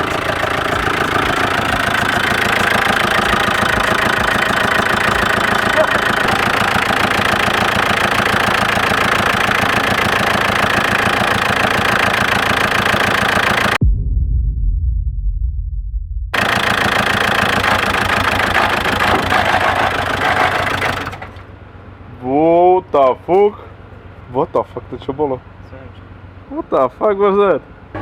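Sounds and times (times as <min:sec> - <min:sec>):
car engine running: 0:00.0 - 0:13.8, 0:16.4 - 0:28.0
loud mechanical whirr: 0:00.0 - 0:13.8, 0:16.4 - 0:21.6.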